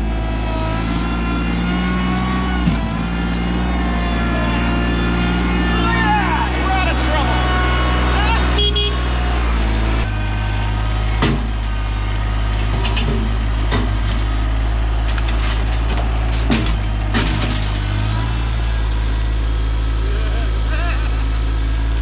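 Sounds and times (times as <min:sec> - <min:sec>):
tractor diesel engine running: 0:00.0 - 0:22.0
sharp knocks and clanks: 0:11.1 - 0:11.7, 0:12.5 - 0:14.4, 0:15.0 - 0:18.1.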